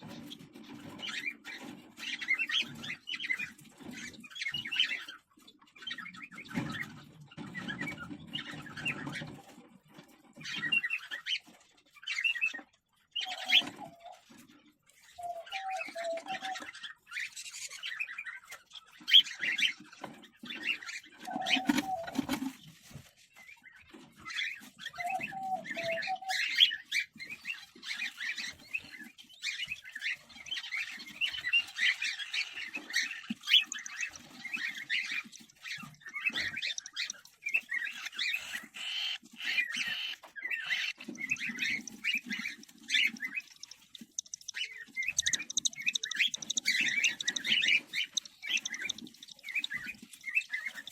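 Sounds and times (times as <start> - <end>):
cockatiel chicks chirping: 0.0 - 50.9
lower bird calls: 21.3 - 22.5, 31.0 - 50.9.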